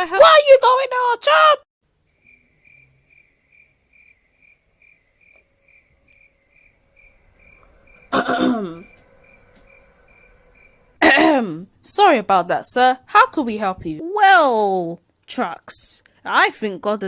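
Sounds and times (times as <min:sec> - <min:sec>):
cricket chirping: 0:02.0 - 0:11.1
person clearing throat: 0:08.1 - 0:08.9, 0:11.0 - 0:11.5.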